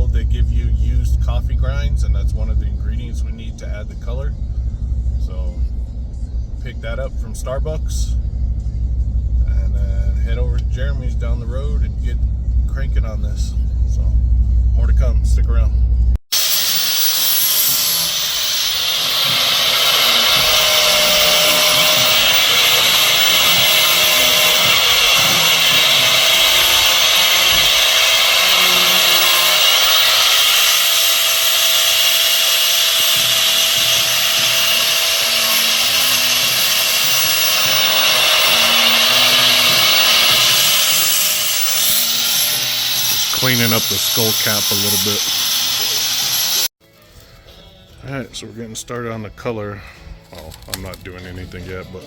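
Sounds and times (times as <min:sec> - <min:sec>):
power tool grinding bone: 0:16.3 - 0:46.7.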